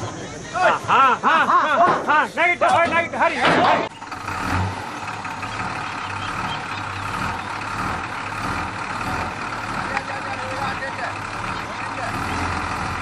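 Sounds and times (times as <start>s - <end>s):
lorry engine running: 3.8s - 13.0s.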